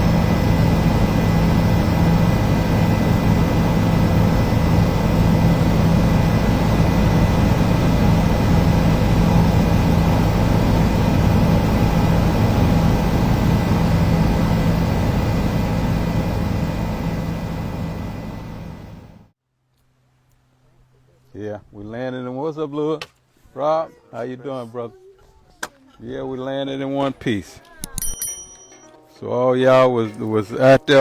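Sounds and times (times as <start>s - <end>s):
helicopter engine and rotor drone: 0.0s - 19.3s.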